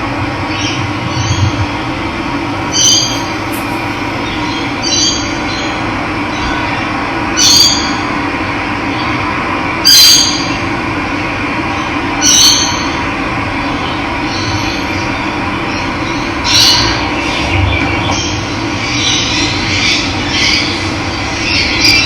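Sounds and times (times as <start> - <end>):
bird call: 2.6 - 5.2.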